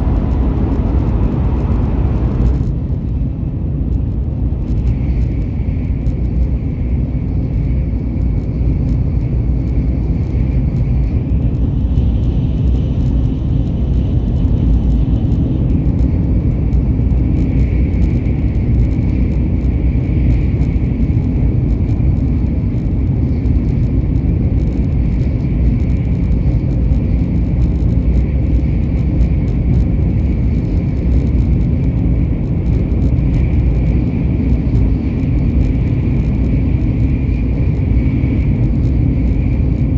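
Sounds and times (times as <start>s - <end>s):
higher whine: 0.0s - 4.3s
faint steady whine: 0.0s - 39.9s
vehicle low rumble: 0.0s - 39.9s.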